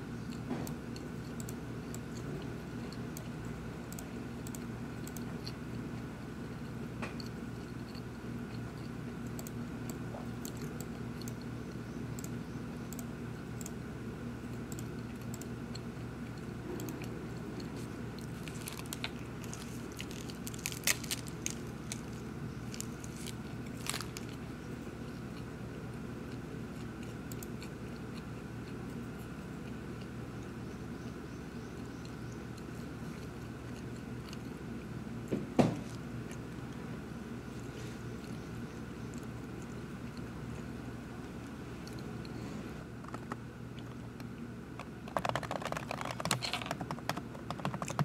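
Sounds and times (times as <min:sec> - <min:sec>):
steady background hum: 0:00.0 - 0:48.0
sharp clicks and crinkles: 0:16.3 - 0:24.4, 0:43.0 - 0:48.0
person crunching a snack: 0:17.6 - 0:24.4.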